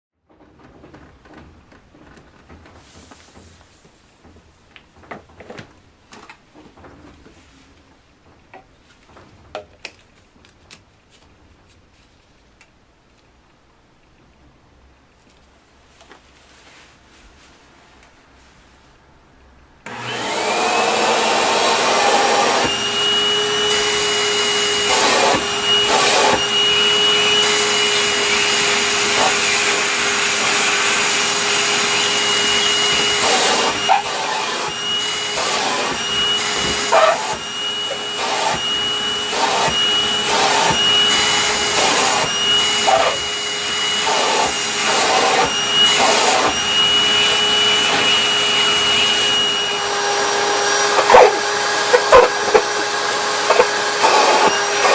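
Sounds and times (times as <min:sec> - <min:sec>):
vacuum cleaner running: 0:19.8 - 0:54.9.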